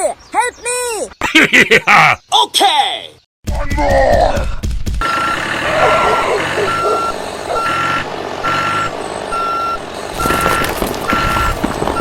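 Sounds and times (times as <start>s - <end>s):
reversing alarm beeping: 5.0s - 12.0s.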